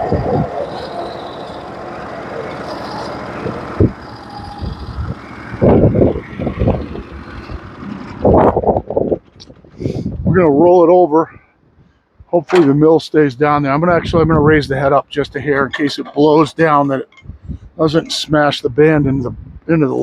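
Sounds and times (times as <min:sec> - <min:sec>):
band saw cutting through log: 0:00.0 - 0:08.2
sawmill engine running: 0:00.0 - 0:11.1, 0:12.4 - 0:17.2.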